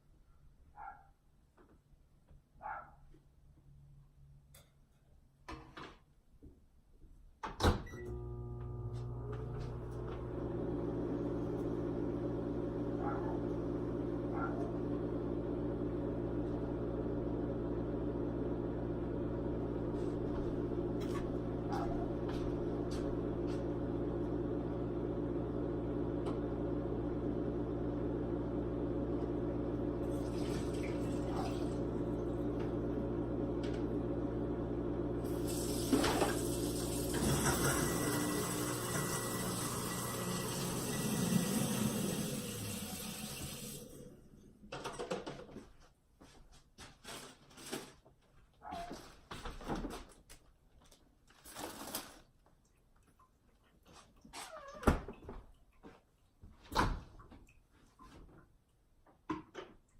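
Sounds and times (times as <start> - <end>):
microwave oven humming: 7.8 - 44.4.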